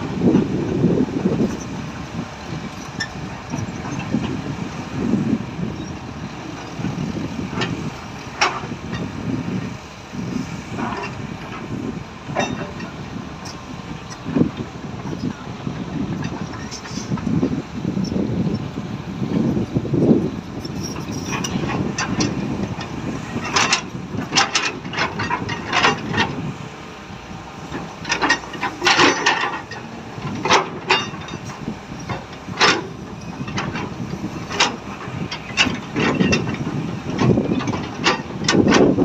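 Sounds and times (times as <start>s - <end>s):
excavator engine rumble: 0.0s - 39.0s
sharp knocks and clatters: 27.7s - 33.9s.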